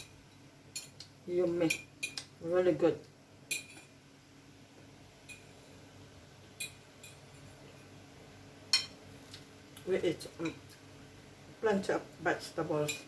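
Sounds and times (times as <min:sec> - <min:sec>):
cutlery clinking against a plate: 0:00.0 - 0:01.1, 0:01.7 - 0:02.3, 0:03.5 - 0:03.9, 0:05.3 - 0:05.5, 0:06.6 - 0:07.6, 0:08.7 - 0:09.0.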